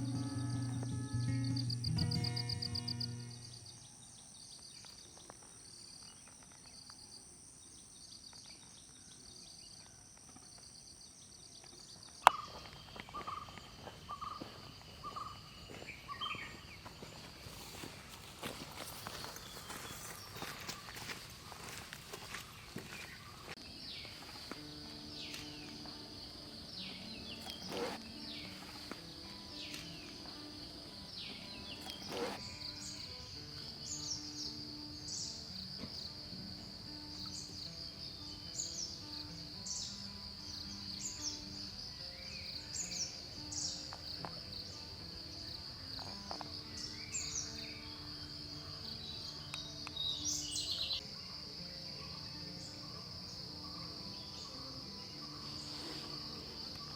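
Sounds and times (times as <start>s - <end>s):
high-pitched insect drone: 0.0s - 4.0s
soft background music: 0.0s - 4.4s, 22.9s - 56.9s
birds calling: 26.7s - 30.4s, 31.1s - 33.2s.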